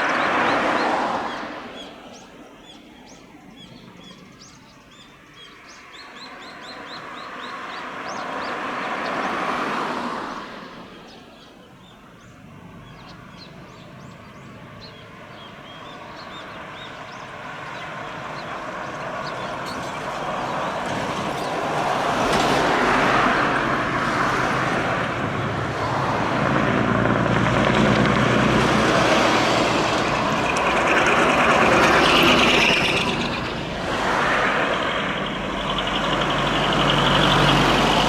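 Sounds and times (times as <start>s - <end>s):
small birds chirping: 0.0s - 9.4s, 10.9s - 25.7s, 28.9s - 38.0s
truck driving past: 15.6s - 38.0s.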